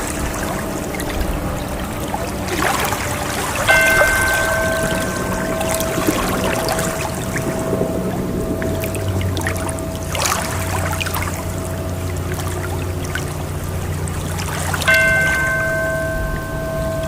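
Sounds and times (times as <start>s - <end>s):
low ambient drone: 0.0s - 17.0s
sustained chord tone: 0.0s - 17.0s
water trickling and splashing: 0.0s - 17.0s
held tone: 3.7s - 13.8s, 14.9s - 17.0s.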